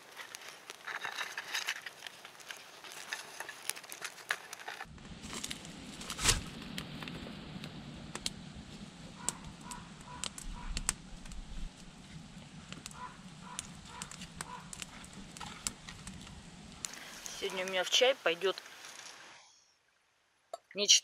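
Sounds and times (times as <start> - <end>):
sharp crackles: 0.0 - 19.4
steady low rumble: 4.8 - 17.4.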